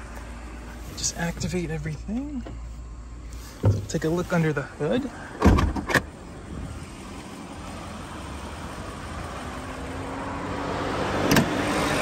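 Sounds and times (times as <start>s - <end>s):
car engine idling: 0.0s - 10.8s
hood latch clunk: 5.4s - 6.1s.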